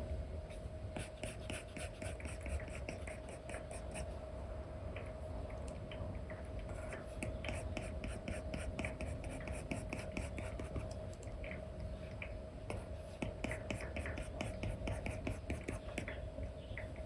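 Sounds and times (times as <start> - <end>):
faint steady hum: 0.0 - 17.0
stylus scratching and tapping screen: 1.0 - 4.1, 6.7 - 11.0, 12.7 - 16.2.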